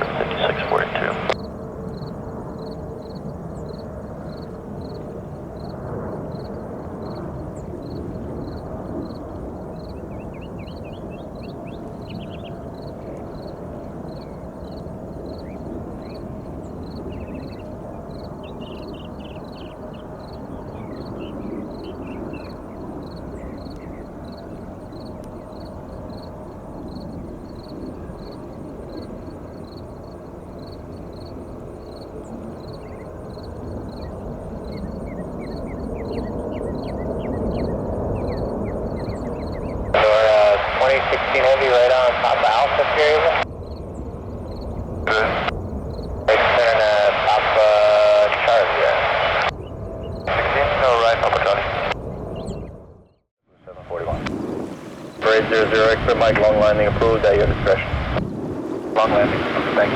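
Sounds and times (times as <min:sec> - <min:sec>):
faint hum: 0:00.0 - 0:05.0, 0:07.2 - 0:52.7, 0:53.6 - 0:59.9
distant jet rumble: 0:00.0 - 0:53.0, 0:53.6 - 0:59.9
small birds twittering: 0:06.3 - 0:40.0, 0:51.8 - 0:53.2.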